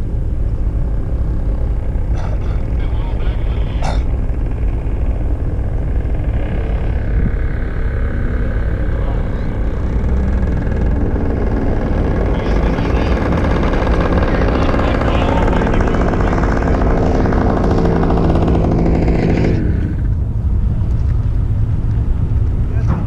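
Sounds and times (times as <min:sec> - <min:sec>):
car engine revving high: 0:05.3 - 0:20.4.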